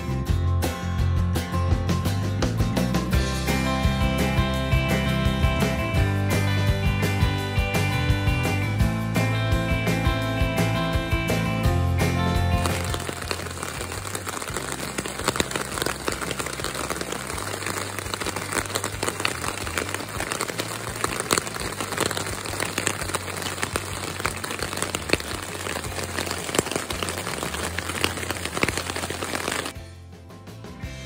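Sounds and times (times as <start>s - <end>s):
rain pattering on a tent: 12.4s - 29.8s.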